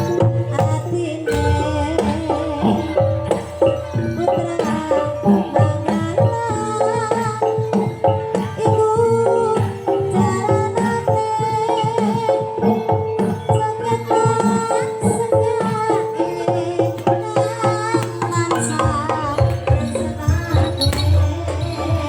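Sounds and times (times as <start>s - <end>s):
drum strikes: 0.0s - 5.9s, 18.1s - 22.0s
gamelan tuned percussion: 0.0s - 22.0s.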